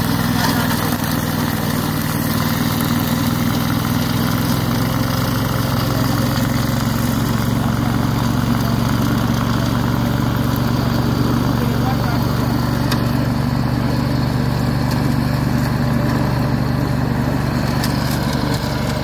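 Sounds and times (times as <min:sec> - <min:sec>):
engine humming steadily: 0:00.0 - 0:19.0.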